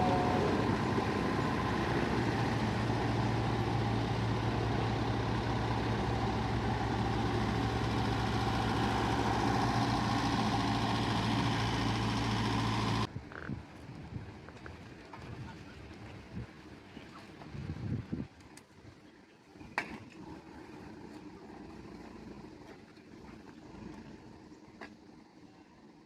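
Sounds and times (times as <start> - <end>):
heavy vehicle engine running: 0.0 - 13.2, 20.1 - 26.0.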